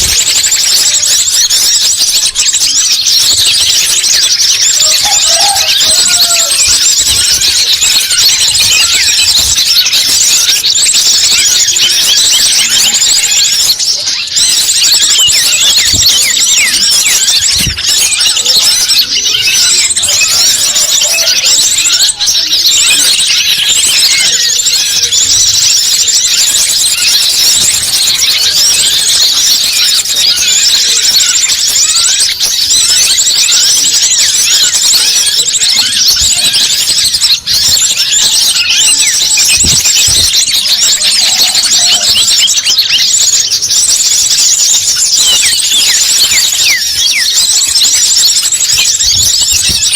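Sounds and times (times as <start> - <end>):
many small birds twittering: 0.0 - 49.9.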